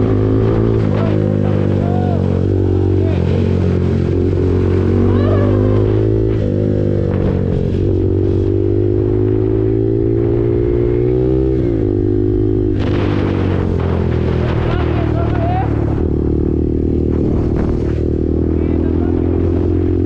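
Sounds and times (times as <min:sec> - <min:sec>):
motorcycle engine running: 0:00.0 - 0:20.0
wind noise on microphone: 0:17.0 - 0:18.3.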